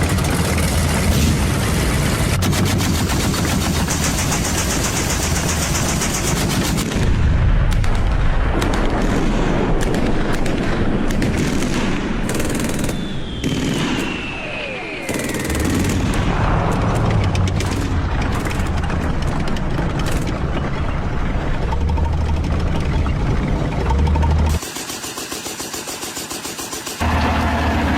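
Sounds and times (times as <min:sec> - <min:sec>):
machine-gun fire: 0:02.4 - 0:14.2, 0:15.0 - 0:20.6, 0:24.5 - 0:27.1
gunshots: 0:02.4 - 0:20.6
falling whistle: 0:13.0 - 0:15.2
heavy low rumble: 0:15.2 - 0:24.6.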